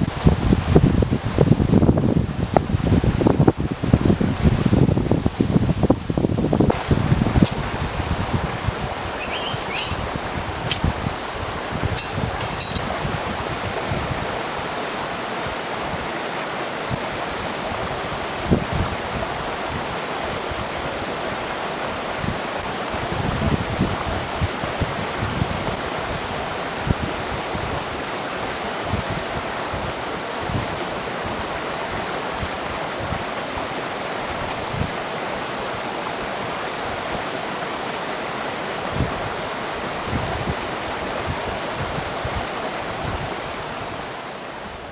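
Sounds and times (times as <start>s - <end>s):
stream flowing: 3.2s - 18.5s, 25.8s - 44.9s.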